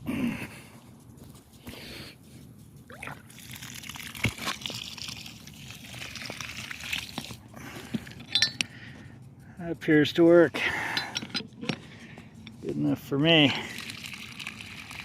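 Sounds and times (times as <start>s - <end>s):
sprinkler water spattering: 1.5s - 8.2s, 13.3s - 15.0s.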